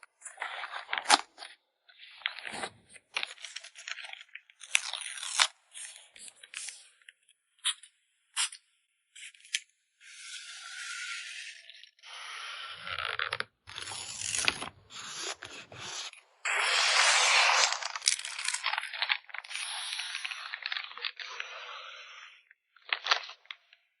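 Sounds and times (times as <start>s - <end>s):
packing materials crinkling: 13.2s - 21.5s.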